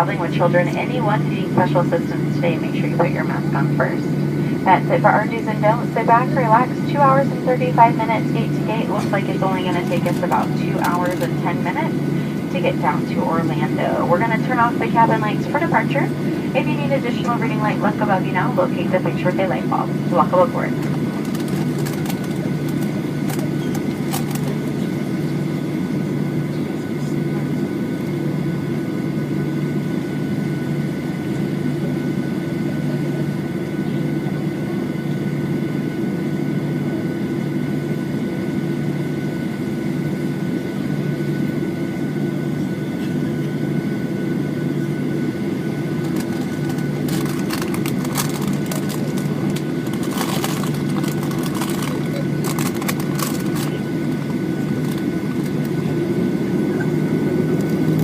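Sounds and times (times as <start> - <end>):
airplane cabin drone: 0.0 - 58.0
steady whine tones: 0.0 - 58.0
sharp clicks and rattles: 20.8 - 24.6, 46.0 - 53.7.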